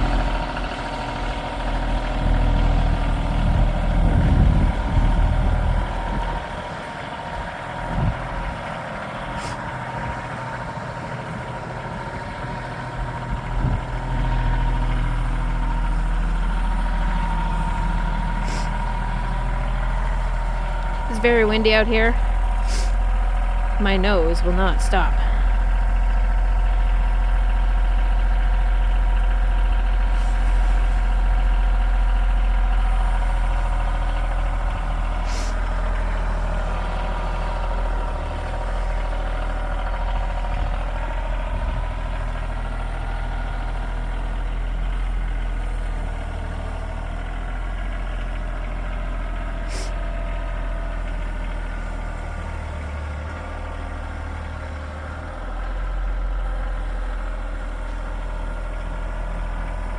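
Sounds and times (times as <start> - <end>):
tractor engine running: 0.0 - 59.9
wind rumble on microphone: 2.8 - 6.7, 7.4 - 8.7, 13.3 - 14.2.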